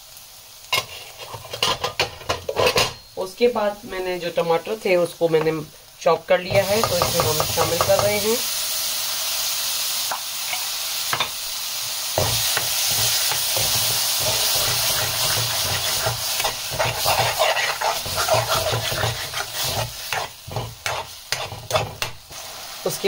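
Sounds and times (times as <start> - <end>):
masala sizzling in hot oil: 0.0 - 23.0
steel spoon scraping pan: 0.7 - 3.2, 12.2 - 22.2.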